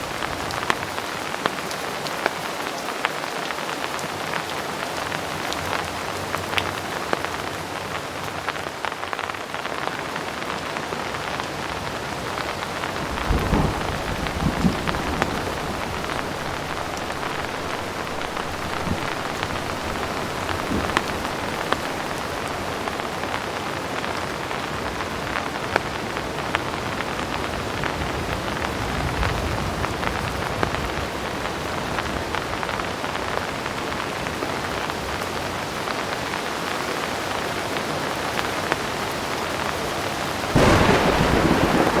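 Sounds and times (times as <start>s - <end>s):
heavy rain falling: 0.0s - 42.0s
distant thunder rumbling: 12.8s - 23.4s, 40.5s - 42.0s.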